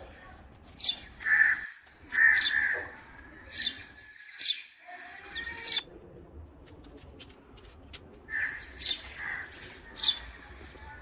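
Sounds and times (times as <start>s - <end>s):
harsh drawn-out bird caws: 1.2s - 3.1s, 8.3s - 9.8s.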